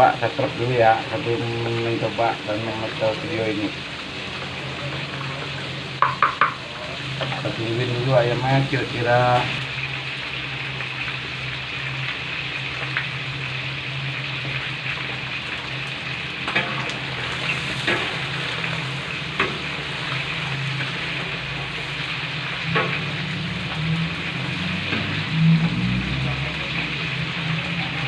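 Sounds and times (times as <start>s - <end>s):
chicken sizzling in hot oil: 0.0s - 28.0s.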